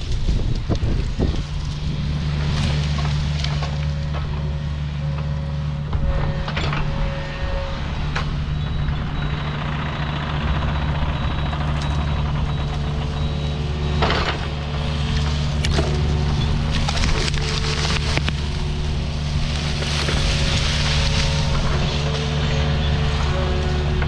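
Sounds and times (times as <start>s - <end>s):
excavator diesel engine running: 0.0s - 24.0s
material crashing and scraping: 13.8s - 24.0s.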